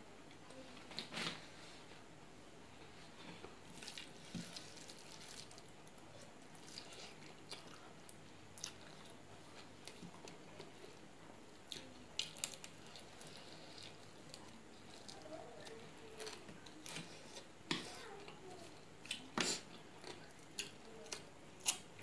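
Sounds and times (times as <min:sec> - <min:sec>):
person chewing food: 0:03.7 - 0:18.0, 0:19.0 - 0:22.0.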